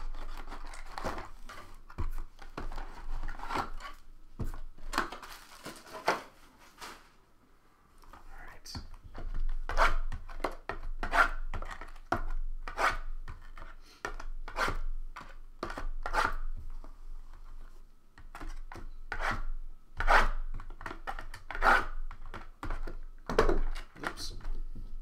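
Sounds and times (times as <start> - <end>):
packaging being scraped and rubbed: 0.0 - 4.0.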